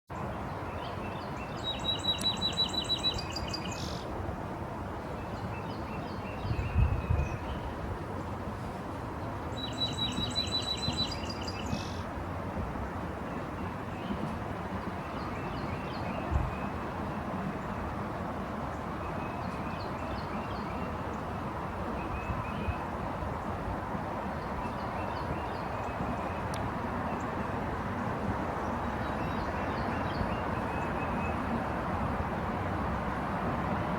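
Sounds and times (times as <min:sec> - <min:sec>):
songbird trilling: 0:01.4 - 0:04.0, 0:09.6 - 0:11.9.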